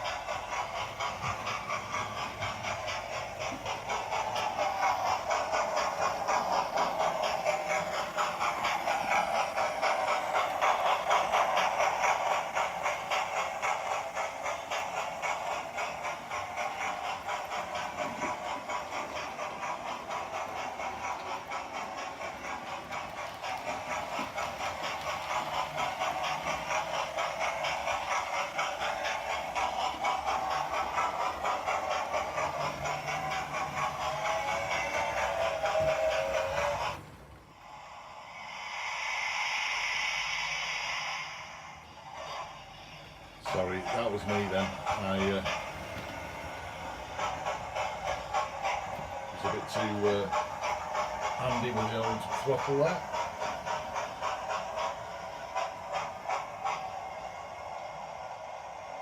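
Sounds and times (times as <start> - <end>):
model wheels clattering on track: 0.0 - 37.4
model steam exhaust chuffs: 0.0 - 59.0.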